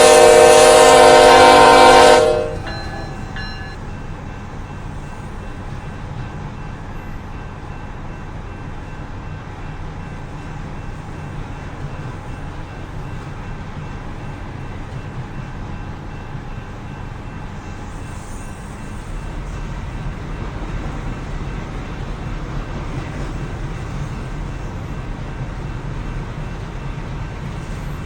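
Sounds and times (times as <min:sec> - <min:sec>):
train rumbling past: 0:00.0 - 0:28.0.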